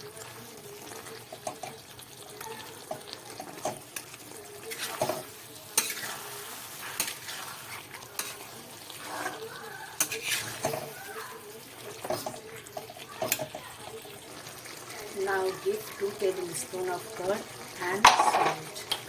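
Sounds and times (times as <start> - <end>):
food sizzling: 0.0 - 19.0
utensil scraping a pan: 4.6 - 11.3, 11.9 - 13.6, 18.0 - 18.6.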